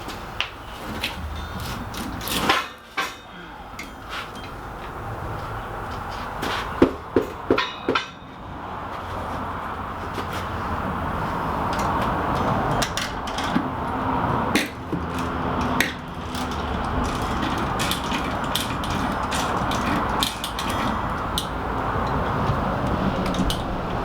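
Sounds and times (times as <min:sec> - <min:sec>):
steady rushing noise: 0:07.9 - 0:24.0
equipment clicks and knocks: 0:11.7 - 0:24.0.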